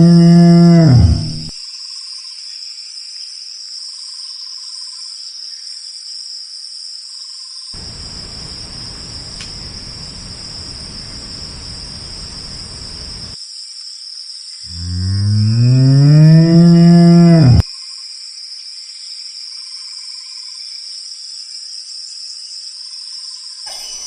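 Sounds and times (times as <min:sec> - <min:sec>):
insect chorus chirring: 0:00.0 - 0:01.5, 0:07.8 - 0:13.4, 0:14.4 - 0:17.6, 0:23.7 - 0:24.0
low rushing noise: 0:07.8 - 0:13.4.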